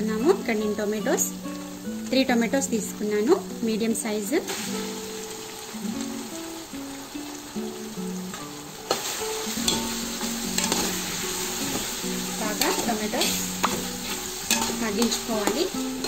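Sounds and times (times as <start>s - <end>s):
tomatoes sizzling in hot oil: 0.0s - 16.0s
metal spoon scraping a pot: 9.6s - 11.0s, 12.5s - 15.8s.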